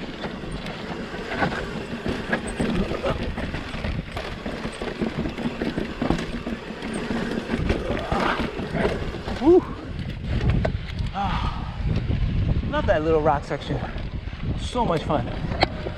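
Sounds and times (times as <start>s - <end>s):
bike tyres rolling over rock: 0.0s - 11.1s
steady low rumble: 7.7s - 15.9s.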